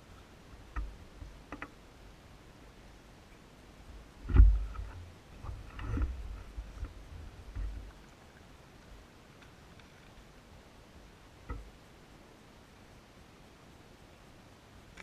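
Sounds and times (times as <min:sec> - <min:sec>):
low rumbling: 0:03.9 - 0:08.1
heavy low thump: 0:04.2 - 0:04.9.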